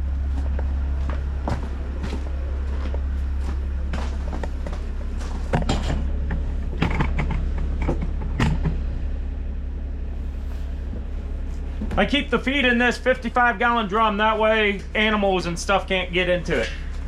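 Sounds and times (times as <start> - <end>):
diesel engine idling: 0.0 - 17.0
creaks clicks and knocks of handling: 5.5 - 8.8.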